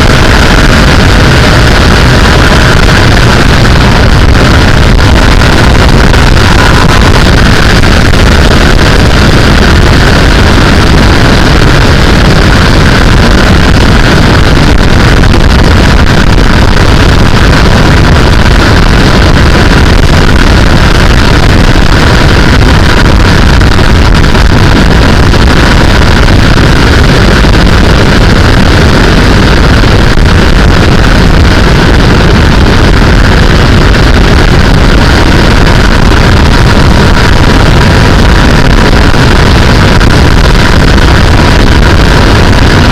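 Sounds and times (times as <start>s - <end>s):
motorcycle engine running: 0.0s - 19.2s
wind rushing on microphone: 0.0s - 42.9s.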